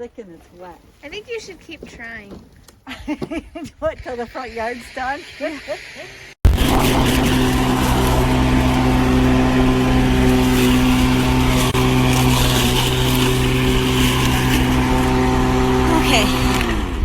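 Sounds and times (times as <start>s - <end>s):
electric lawn mower running: 6.5s - 17.0s.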